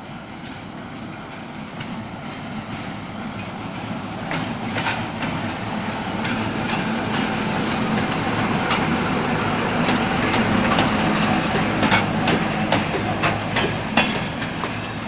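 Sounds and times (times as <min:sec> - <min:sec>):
locomotive engine humming: 0:00.0 - 0:15.0
wheels clicking over rail joints: 0:03.4 - 0:15.0.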